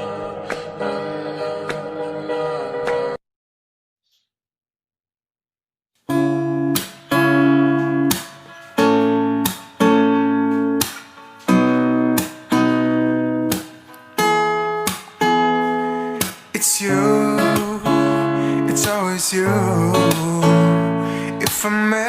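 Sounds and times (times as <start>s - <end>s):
acoustic guitar strumming chords: 6.1s - 22.0s.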